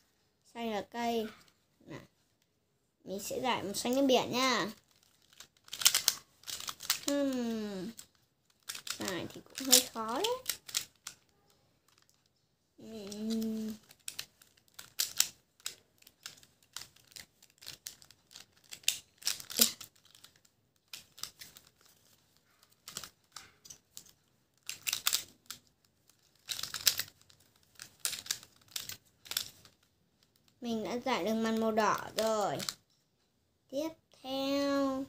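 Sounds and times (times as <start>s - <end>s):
plastic cube clicking as twisted: 4.7s - 12.2s, 13.0s - 32.8s.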